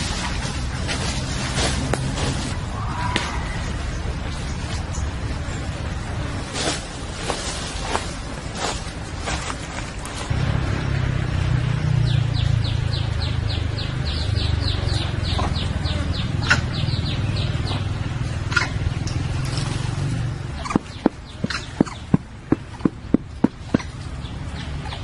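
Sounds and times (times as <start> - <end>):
engine rumbling: 0.0 - 25.0
bird chirping: 11.8 - 19.1, 20.3 - 25.0.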